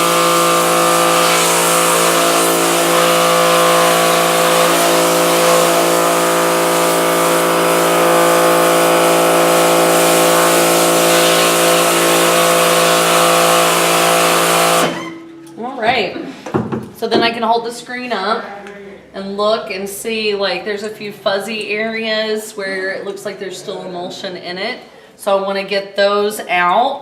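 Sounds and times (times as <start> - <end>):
water jet hissing: 0.0 - 15.2
pressure washer pump humming: 0.0 - 15.6.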